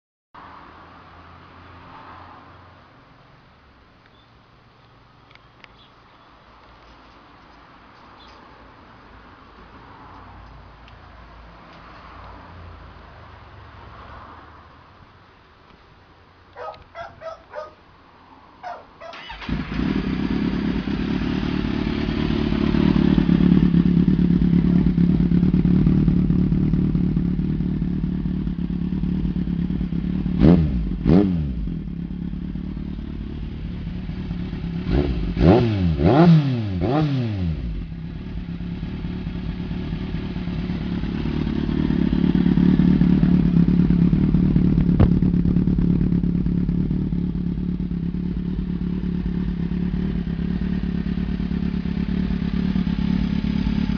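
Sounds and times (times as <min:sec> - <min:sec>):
motorcycle engine idling and revving: 0:16.4 - 0:18.0, 0:18.6 - 0:53.9.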